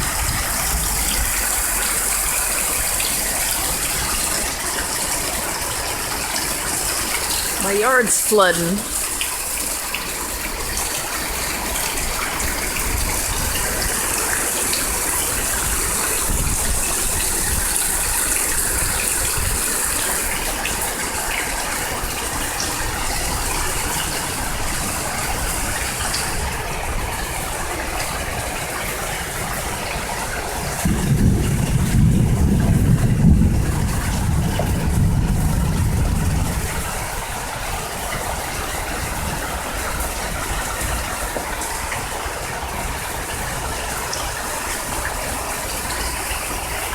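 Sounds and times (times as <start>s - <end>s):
gushing water: 0.0s - 46.9s
hard rain pouring: 0.0s - 46.9s.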